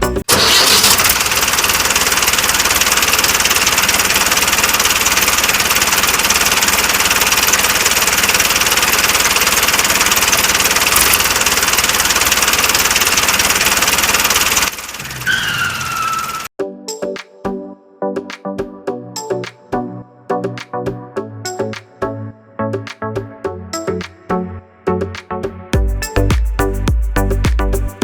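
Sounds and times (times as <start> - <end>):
small electric motor buzzing: 0.8 - 15.2.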